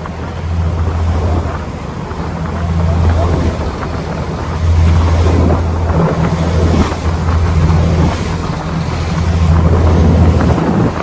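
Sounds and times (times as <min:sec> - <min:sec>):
ferry engine droning: 0:00.0 - 0:11.0
rushing water: 0:00.0 - 0:11.0
wind buffeting microphone: 0:00.0 - 0:11.0.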